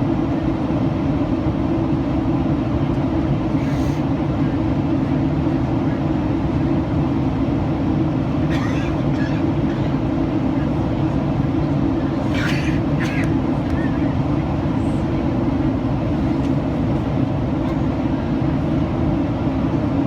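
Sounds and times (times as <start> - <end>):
jet engines humming: 0.0 - 20.0
airplane cabin airflow rushing: 1.8 - 5.6, 6.5 - 20.0.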